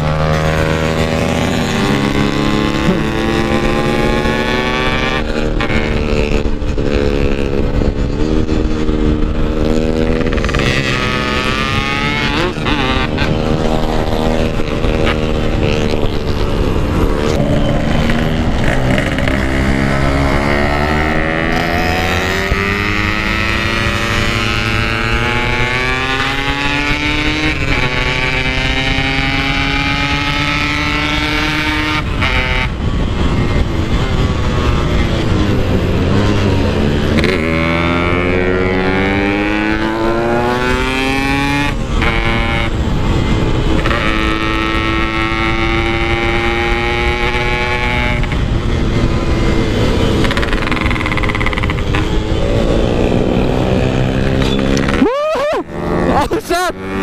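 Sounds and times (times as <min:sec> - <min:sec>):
two-stroke engine accelerating: 0:00.0 - 0:57.0.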